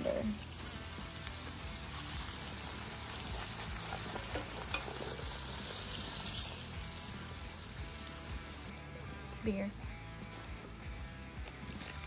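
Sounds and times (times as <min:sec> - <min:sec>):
vegetables sizzling: 0:00.0 - 0:08.9, 0:11.5 - 0:12.0.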